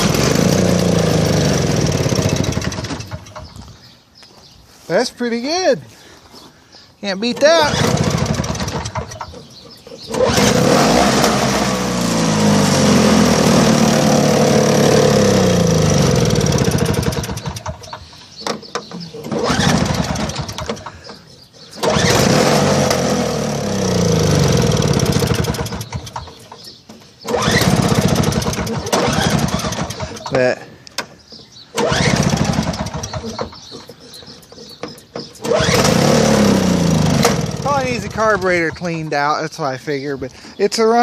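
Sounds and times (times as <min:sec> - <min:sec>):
snowblower engine revving: 0:00.0 - 0:03.3, 0:07.3 - 0:09.4, 0:10.0 - 0:18.0, 0:19.1 - 0:21.1, 0:21.8 - 0:26.2, 0:27.3 - 0:30.6, 0:31.8 - 0:33.5, 0:35.4 - 0:38.8.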